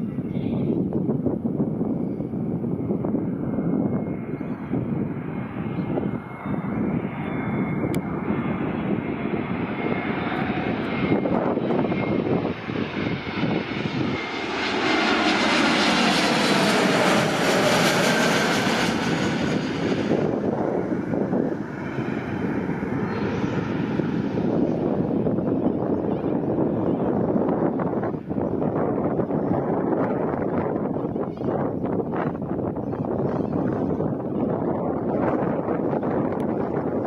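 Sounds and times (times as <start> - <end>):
jet airliner passing: 0.0 - 37.0
wind buffeting microphone: 0.0 - 37.0.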